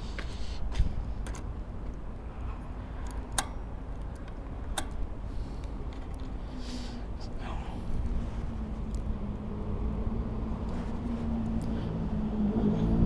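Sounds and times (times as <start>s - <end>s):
sharp clicks of bicycle tools: 3.0s - 6.3s.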